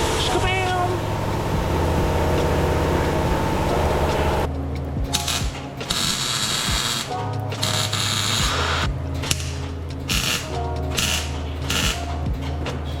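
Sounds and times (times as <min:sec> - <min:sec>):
ratchet wrench clicking: 0:05.1 - 0:12.1.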